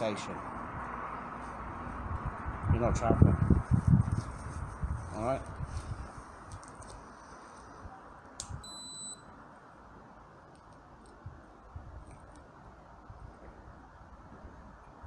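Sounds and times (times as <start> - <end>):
steady background noise: 0.0 - 15.0
high electronic beep: 8.6 - 9.2.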